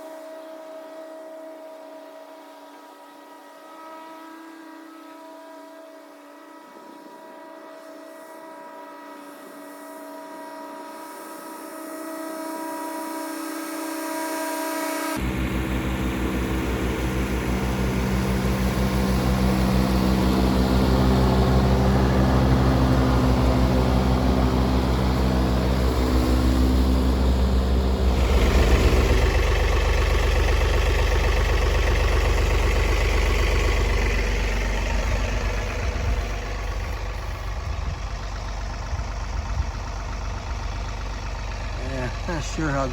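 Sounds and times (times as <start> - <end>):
tractor diesel engine: 11.6 - 42.9
mower blades cutting: 15.2 - 37.7.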